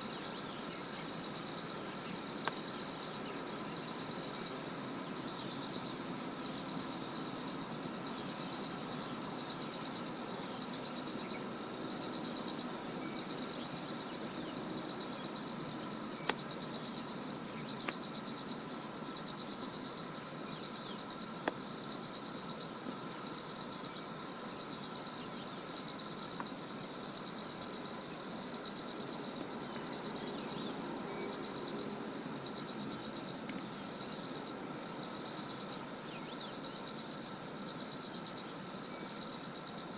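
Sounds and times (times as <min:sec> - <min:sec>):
high pulsing insect call: 0:00.0 - 0:39.9.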